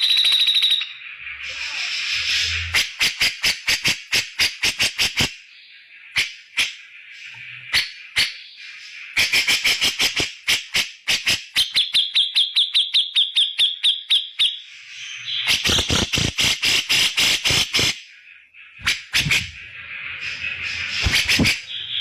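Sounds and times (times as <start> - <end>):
bulbul sharp rapid calls: 0.0 - 5.5, 6.1 - 14.6, 15.2 - 22.0
bird chattering burst: 9.2 - 13.0, 15.4 - 18.0, 18.8 - 19.7, 20.3 - 22.0.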